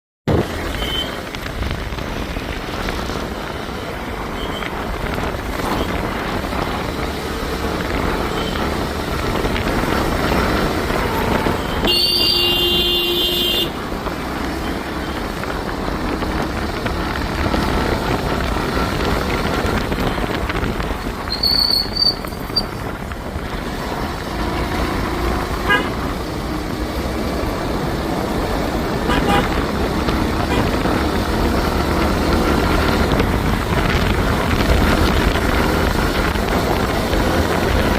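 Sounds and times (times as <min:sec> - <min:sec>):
city street traffic: 0:00.3 - 0:37.9
vehicle horn: 0:00.8 - 0:01.2, 0:11.0 - 0:13.8, 0:25.6 - 0:26.1, 0:29.0 - 0:29.7
short horn toots: 0:11.6 - 0:13.7.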